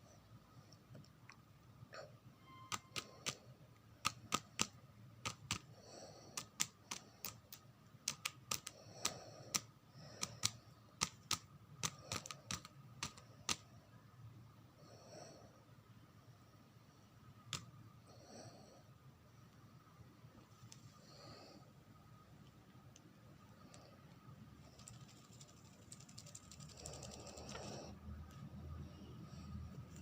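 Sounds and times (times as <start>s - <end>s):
bird tapping and clicking: 2.7s - 3.4s, 4.0s - 5.7s, 6.3s - 13.6s.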